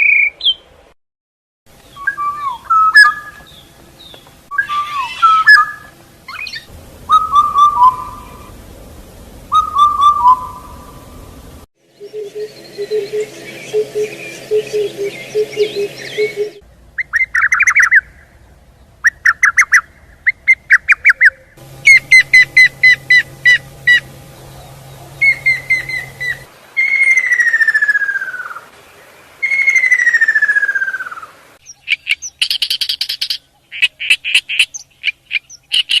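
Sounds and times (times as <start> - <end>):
birds chirping: 1.8 - 36.0
bird whistling: 1.9 - 8.5, 9.5 - 11.2, 12.0 - 18.2, 19.0 - 28.6, 29.4 - 33.4.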